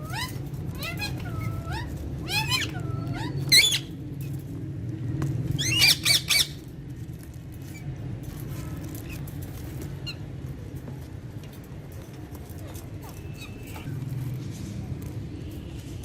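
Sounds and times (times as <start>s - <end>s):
parrot squawking: 0.0s - 4.0s, 5.6s - 6.6s, 13.2s - 13.9s.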